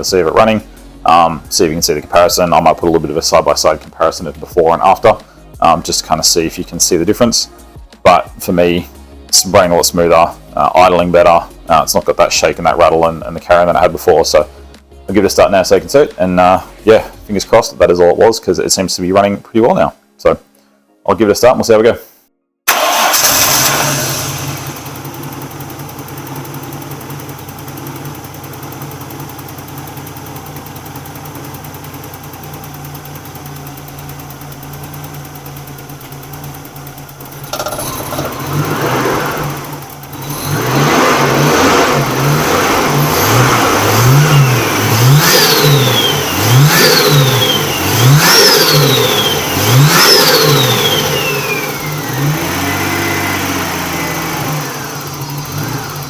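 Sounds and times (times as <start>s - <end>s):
car engine idling and revving: 22.7s - 56.0s.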